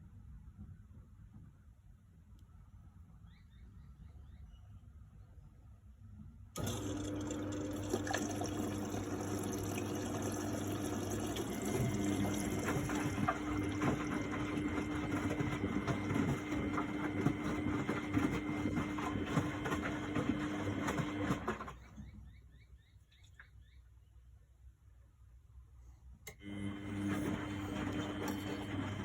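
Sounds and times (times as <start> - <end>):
rushing crackling water: 6.6 - 14.4
washing machine electric hum: 6.6 - 22.5, 26.2 - 29.0.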